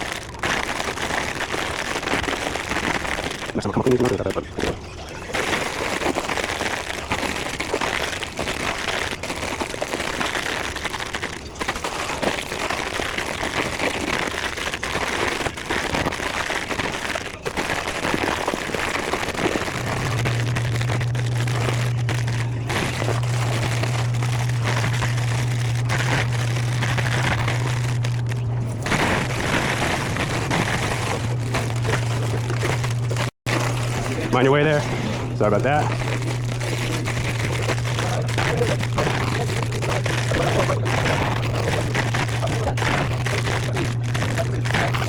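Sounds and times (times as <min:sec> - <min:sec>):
plastic snack bags crinkling: 0:00.0 - 0:45.0
steady low hum: 0:18.4 - 0:45.0.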